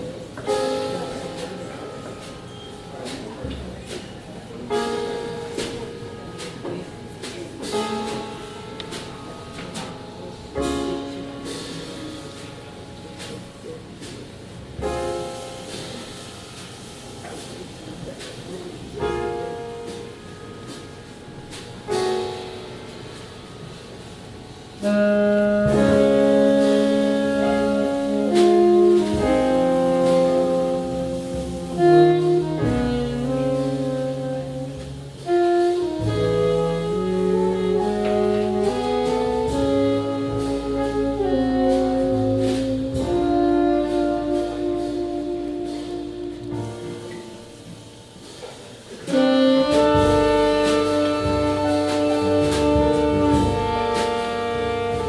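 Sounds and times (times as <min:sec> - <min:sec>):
jazz band playing: 0:00.0 - 0:55.0
bass: 0:24.8 - 0:47.8, 0:49.1 - 0:55.0
saxophone melody: 0:24.8 - 0:47.8, 0:49.0 - 0:55.0.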